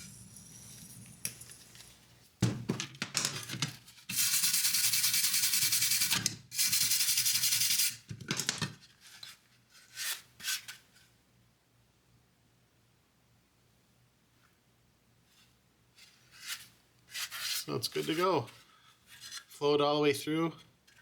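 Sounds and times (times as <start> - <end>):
brush scraping metal: 16.4 - 19.4.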